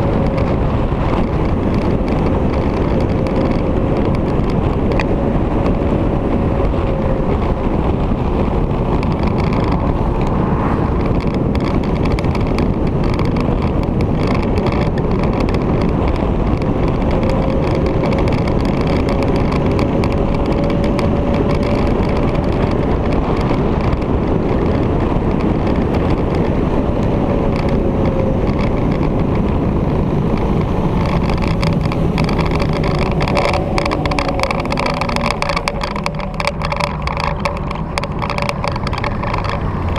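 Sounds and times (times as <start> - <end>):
motorcycle engine drone: 0.0 - 39.9
wind rushing over microphone: 0.0 - 39.9
faint drifting tone: 27.7 - 39.9.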